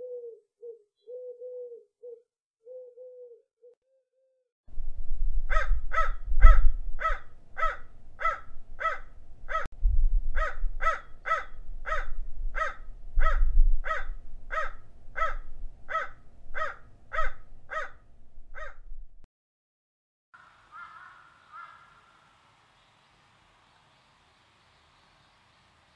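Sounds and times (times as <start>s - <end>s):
low rumble: 4.7s - 19.3s
crow cawing: 5.5s - 9.7s, 10.4s - 18.0s, 18.6s - 18.8s, 20.7s - 22.2s.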